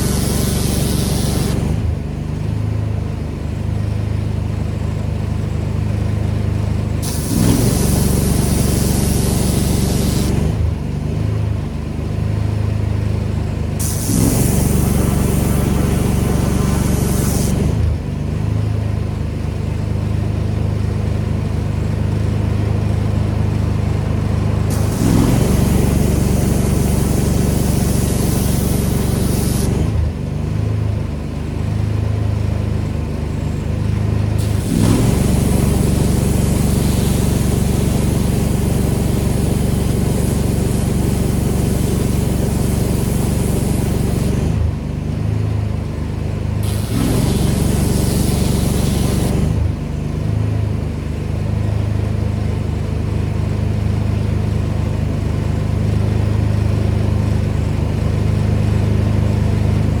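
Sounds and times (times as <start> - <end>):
high-pressure spray hissing: 0.0 - 1.8, 7.0 - 10.5, 13.8 - 17.8, 24.7 - 29.9, 34.4 - 44.5, 46.6 - 49.6
pressure washer engine running: 0.0 - 2.0, 7.0 - 10.8, 13.8 - 18.2, 23.0 - 30.3, 34.3 - 44.7, 46.6 - 49.8.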